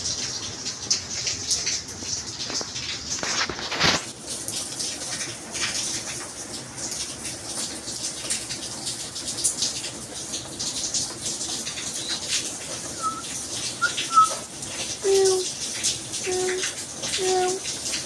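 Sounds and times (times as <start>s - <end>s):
steady rain: 0.0s - 18.0s
water dripping and splashing: 0.0s - 18.0s
low cooing calls: 12.9s - 15.5s, 16.2s - 17.6s
high bird chirps: 13.0s - 14.4s.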